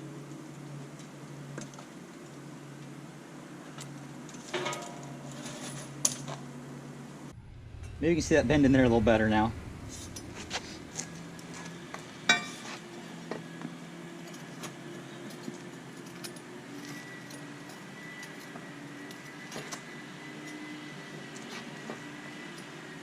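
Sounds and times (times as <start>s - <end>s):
low hum: 7.2s - 13.2s.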